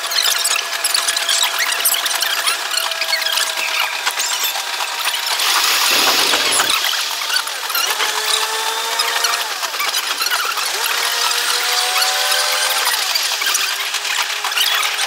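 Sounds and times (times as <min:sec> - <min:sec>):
sped-up train running noise: 0:00.5 - 0:08.9
rapid clicking: 0:04.2 - 0:07.4.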